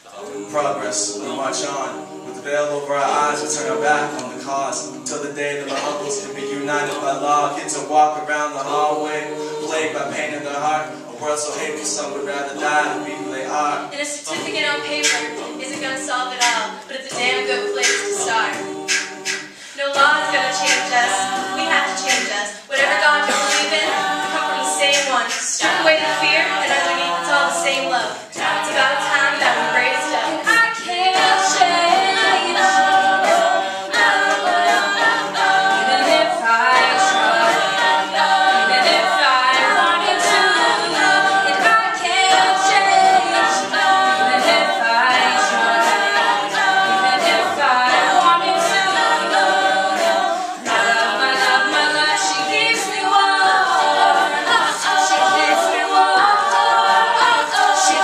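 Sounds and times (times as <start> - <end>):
vocal group singing in harmony: 0.0 - 58.0
percussive clicks: 22.1 - 22.4.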